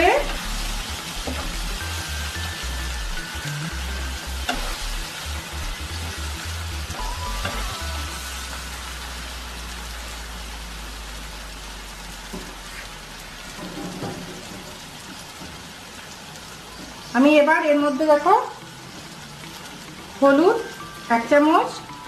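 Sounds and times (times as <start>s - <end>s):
background music with bass: 0.0s - 9.9s
food sizzling in a pan: 0.0s - 22.0s.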